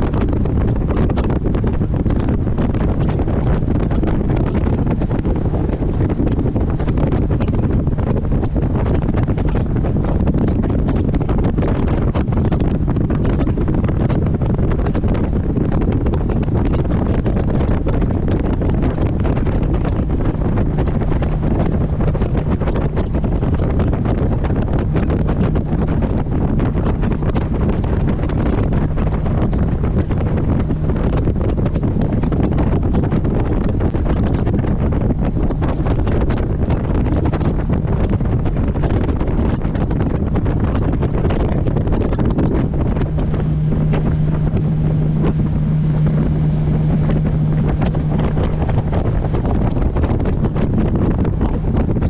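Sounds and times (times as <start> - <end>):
boat engine drone: 0.0 - 52.0
water noise: 0.0 - 52.0
wind buffeting microphone: 0.0 - 52.0.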